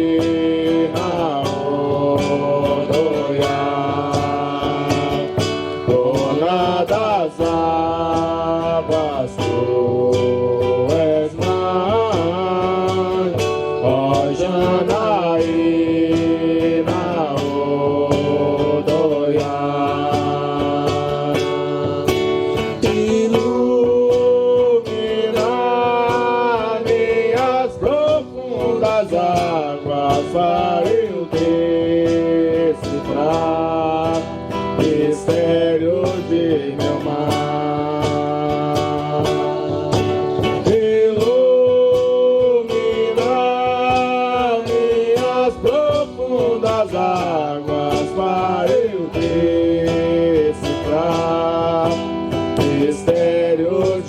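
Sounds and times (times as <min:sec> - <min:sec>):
strummed acoustic guitar: 0:00.0 - 0:54.0.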